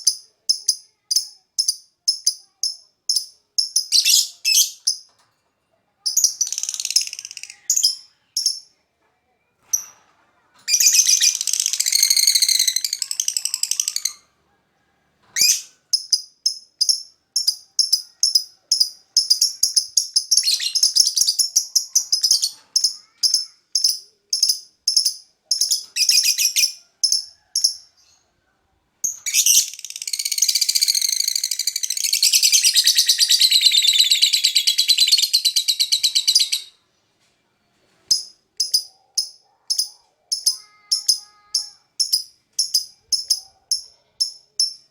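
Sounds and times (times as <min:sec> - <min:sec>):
bird chirping: 0:00.0 - 0:05.3, 0:06.0 - 0:08.8, 0:15.2 - 0:28.3, 0:29.0 - 0:36.9, 0:38.0 - 0:44.9.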